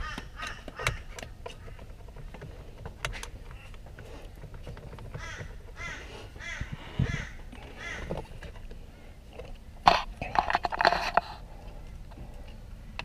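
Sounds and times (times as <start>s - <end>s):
bird cawing: 0.0s - 1.9s, 5.1s - 8.3s.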